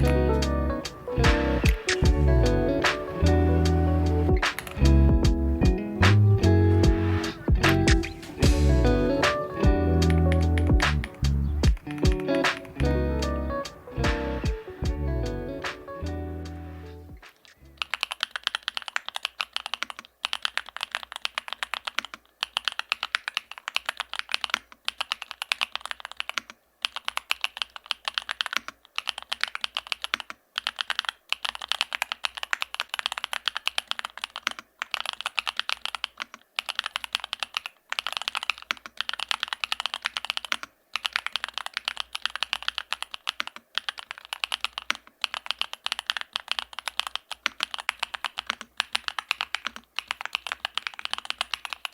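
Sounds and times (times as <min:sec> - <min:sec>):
fast typing on mechanical keyboard: 0:17.4 - 0:51.9.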